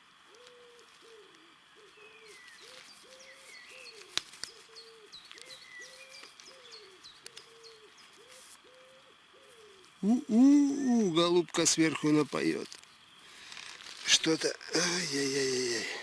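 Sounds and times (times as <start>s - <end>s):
dove cooing: 0.2s - 11.2s
small birds chirping: 0.2s - 16.0s.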